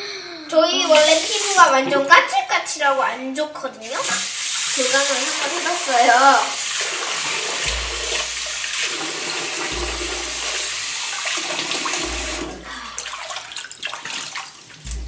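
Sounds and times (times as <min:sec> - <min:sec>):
face rinsing splashes: 0:00.8 - 0:01.7, 0:03.9 - 0:15.0
tap water running into sink: 0:00.8 - 0:02.1, 0:03.8 - 0:15.0.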